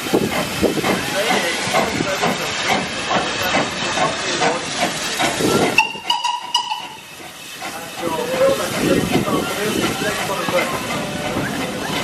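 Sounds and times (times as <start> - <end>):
steam engine chuffing: 0.0 - 12.0
steam whistle: 5.8 - 7.0.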